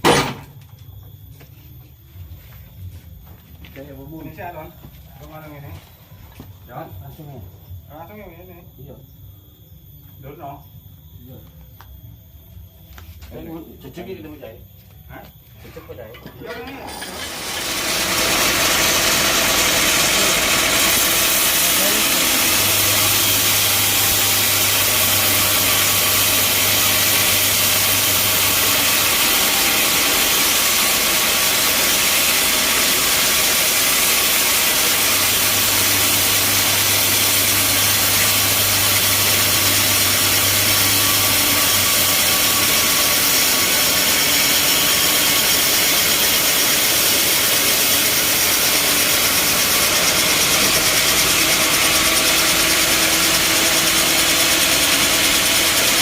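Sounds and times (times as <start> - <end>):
band saw cutting log: 16.9 - 56.0.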